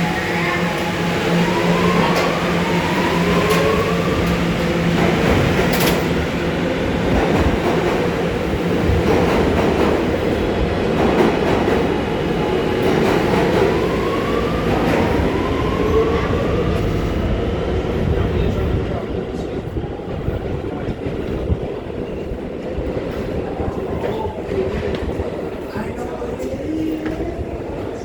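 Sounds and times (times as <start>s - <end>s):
subway train rumble: 0.0s - 28.0s.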